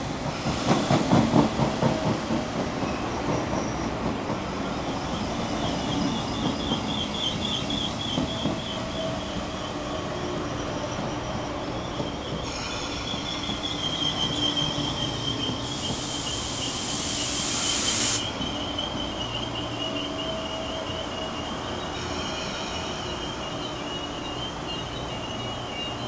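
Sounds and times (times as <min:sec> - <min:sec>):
train rumbling past: 0:00.0 - 0:26.0
high wheel squeal: 0:04.9 - 0:26.0
loud hiss: 0:15.6 - 0:18.7.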